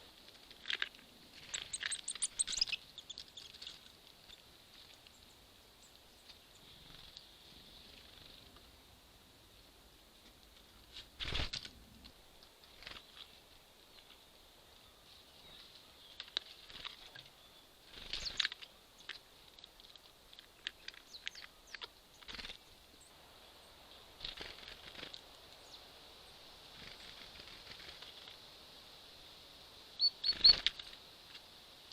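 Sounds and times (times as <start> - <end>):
birds pecking at seeds: 0.0 - 8.8, 10.2 - 23.0, 23.9 - 26.0, 26.6 - 28.6, 30.0 - 31.9
faint steady hiss: 0.0 - 31.9
bird wings fluttering: 0.3 - 5.0, 6.7 - 7.3, 10.9 - 11.8, 12.6 - 14.1, 16.1 - 17.2, 17.8 - 18.7, 22.2 - 22.7, 24.1 - 25.4, 26.7 - 28.4, 30.2 - 31.4.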